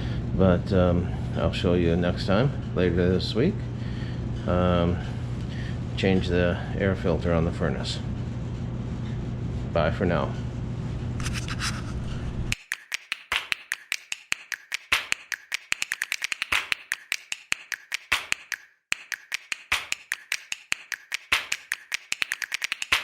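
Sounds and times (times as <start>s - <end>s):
rapid sharp clicks and taps: 12.5s - 23.0s.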